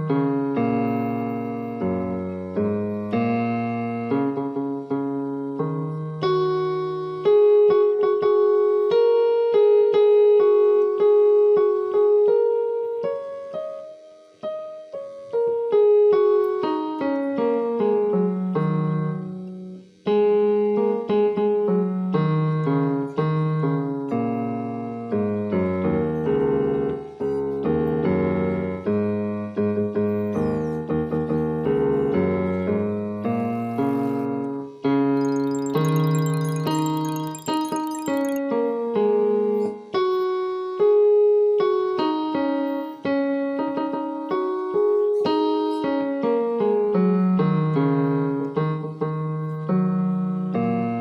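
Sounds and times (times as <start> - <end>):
piano music: 25.2 - 34.4, 35.2 - 38.4.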